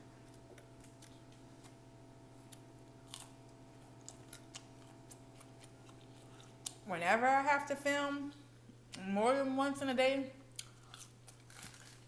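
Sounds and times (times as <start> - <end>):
faint chewing and mouth clicks: 4.0 - 6.8, 10.6 - 11.8.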